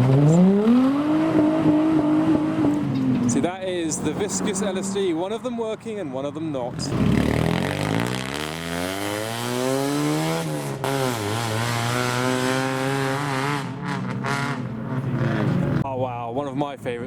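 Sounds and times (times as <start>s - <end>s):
car engine accelerating hard: 0.0s - 3.5s, 6.8s - 15.8s.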